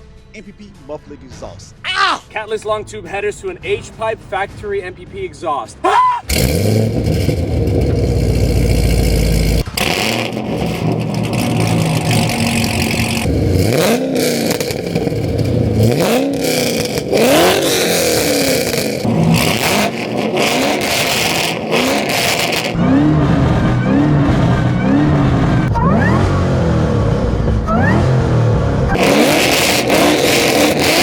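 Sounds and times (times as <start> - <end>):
car engine revving: 6.2 - 31.0.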